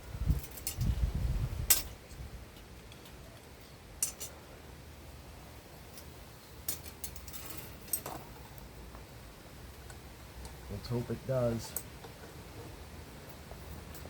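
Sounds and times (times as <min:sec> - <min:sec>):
metallic clicks and clinks: 0:01.7 - 0:02.0, 0:04.0 - 0:04.4, 0:06.7 - 0:08.2.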